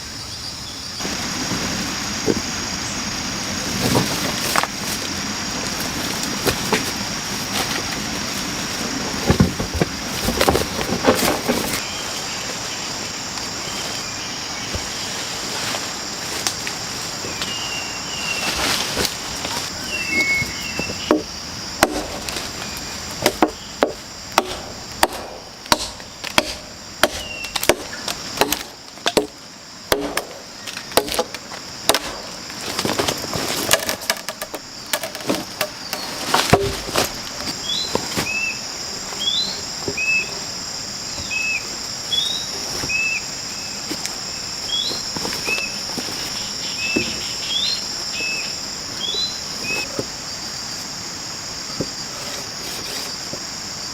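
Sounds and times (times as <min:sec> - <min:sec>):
insects buzzing: 0:00.0 - 0:53.9
chopping on wood: 0:21.1 - 0:22.3, 0:23.2 - 0:30.4, 0:31.0 - 0:31.3, 0:31.9 - 0:32.4.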